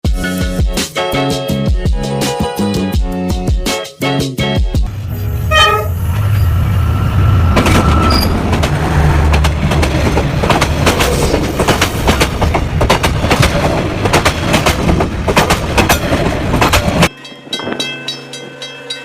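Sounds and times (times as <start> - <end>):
train rumbling past: 4.8 - 19.0
train wheels clacking on track: 7.5 - 19.0.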